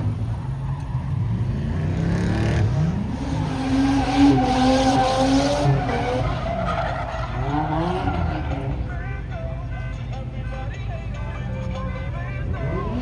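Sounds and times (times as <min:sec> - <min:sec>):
car engine revving: 0:00.0 - 0:09.5, 0:11.2 - 0:13.0
tyres squealing: 0:03.2 - 0:09.0.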